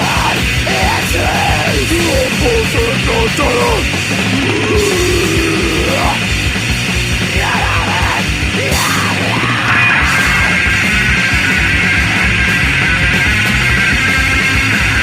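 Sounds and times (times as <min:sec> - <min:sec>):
punk band playing: 0:00.0 - 0:15.0.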